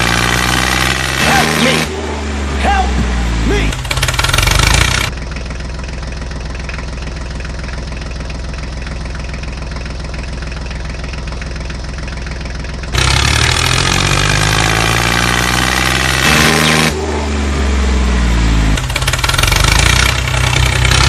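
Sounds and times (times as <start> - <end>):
engine idling: 1.2 - 14.8, 16.9 - 21.0.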